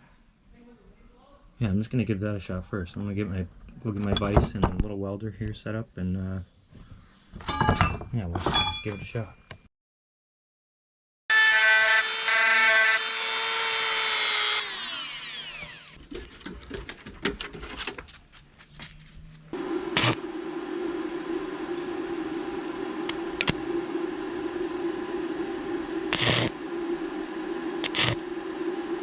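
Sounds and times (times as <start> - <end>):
electric power tool running: 11.3 - 16.0, 19.6 - 29.0
steady hum: 19.6 - 29.0.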